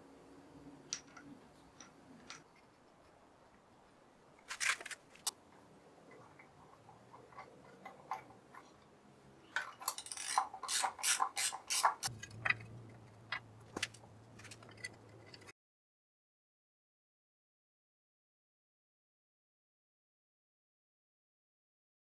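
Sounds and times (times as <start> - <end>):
metallic clicks and clinks: 9.6 - 15.5.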